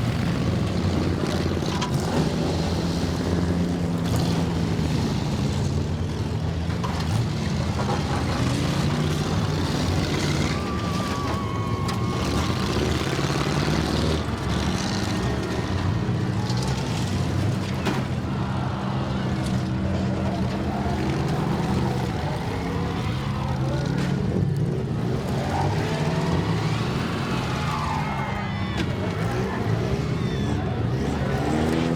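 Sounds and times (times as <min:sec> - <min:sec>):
car engines revving: 0:00.0 - 0:31.9.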